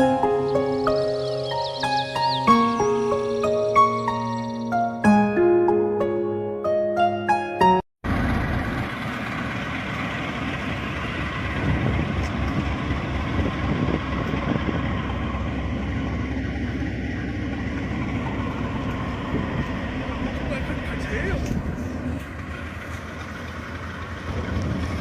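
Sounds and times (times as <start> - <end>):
vehicle rumble: 0.0 - 4.8, 8.0 - 25.0
background music: 0.0 - 7.8.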